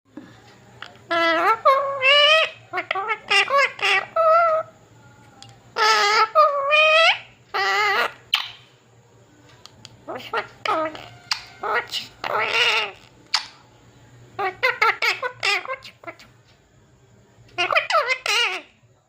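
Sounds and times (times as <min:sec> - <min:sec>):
parrot chattering: 0:00.8 - 0:04.7, 0:05.8 - 0:08.7, 0:10.0 - 0:13.6, 0:14.4 - 0:16.4, 0:17.5 - 0:18.7.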